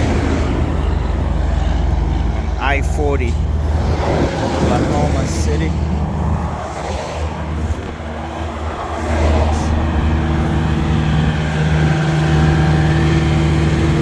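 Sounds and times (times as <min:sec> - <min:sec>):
road traffic: 0:00.0 - 0:14.0
vehicle engine humming: 0:00.0 - 0:14.0.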